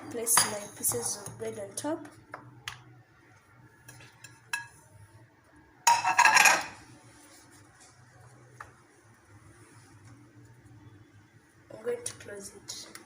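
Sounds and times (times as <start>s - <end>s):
clatter of dishes and utensils: 5.9s - 6.8s.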